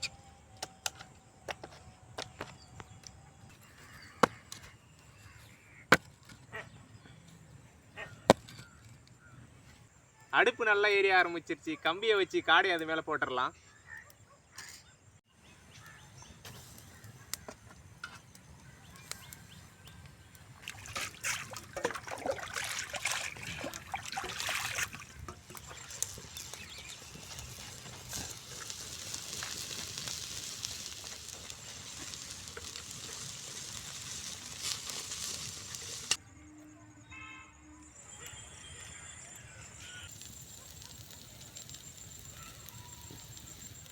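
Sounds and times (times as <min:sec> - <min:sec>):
meat sizzling over open fire: 0:15.5 - 0:36.2, 0:38.0 - 0:43.9
fire crackles and pops: 0:15.6 - 0:36.2, 0:39.4 - 0:43.9.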